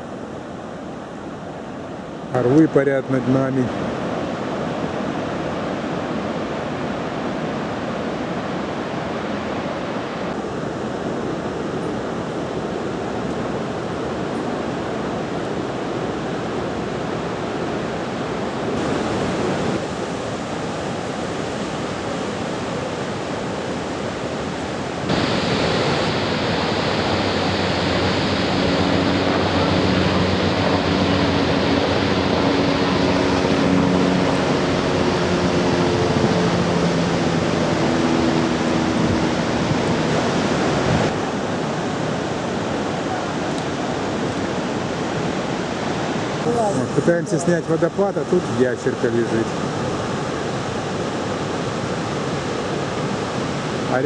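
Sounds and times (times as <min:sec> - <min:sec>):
waterfall roar: 0:00.0 - 0:54.0
low steady hum: 0:25.0 - 0:41.1.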